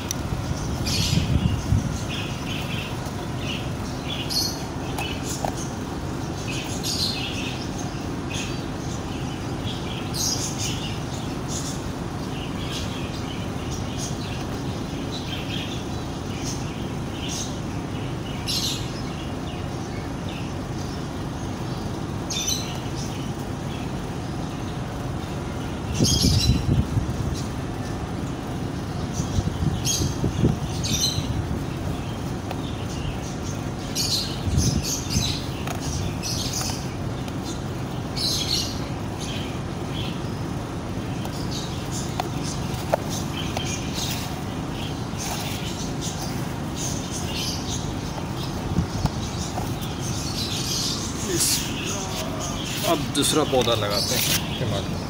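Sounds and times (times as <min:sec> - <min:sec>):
steady low rumble: 0:00.0 - 0:10.1, 0:22.8 - 0:55.0
small birds chirping: 0:00.0 - 0:55.0.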